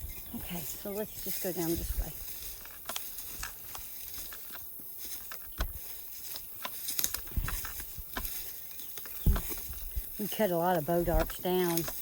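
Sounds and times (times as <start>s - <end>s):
twigs crackling underfoot: 0.0s - 12.0s
heavy footfalls: 9.2s - 10.1s.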